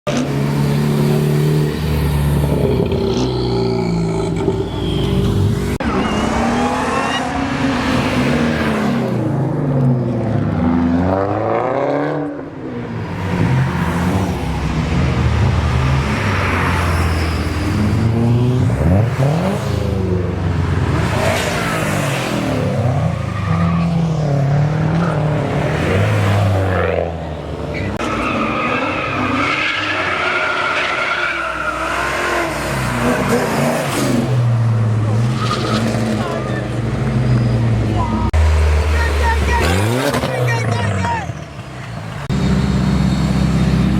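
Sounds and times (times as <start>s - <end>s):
car engines revving: 0.1s - 43.9s
tyre squeal: 4.4s - 7.8s.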